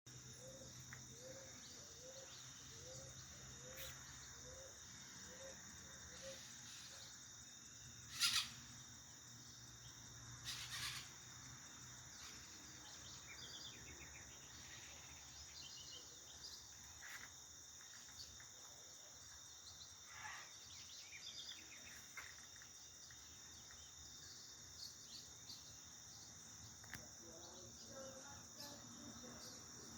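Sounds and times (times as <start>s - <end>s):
high insect drone: 0.1s - 29.9s
bird calls: 0.4s - 7.1s, 8.1s - 8.8s, 10.4s - 11.2s
sharp loud calls: 8.1s - 8.7s, 10.4s - 11.2s
low evenly spaced calls: 8.1s - 8.8s, 10.4s - 11.2s.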